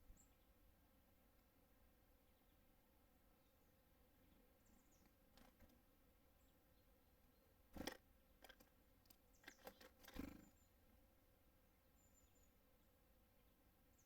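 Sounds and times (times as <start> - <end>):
faint high bird chirp: 0.0 - 0.6, 3.3 - 5.7, 6.3 - 10.8, 11.8 - 14.0
birds tapping on feeder: 4.7 - 5.8, 7.7 - 10.6.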